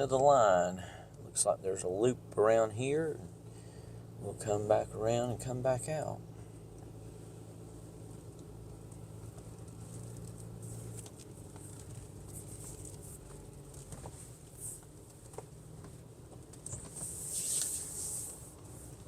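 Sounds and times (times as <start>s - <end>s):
car engine and road hum: 0.0s - 19.0s
brief hiss: 16.7s - 18.6s.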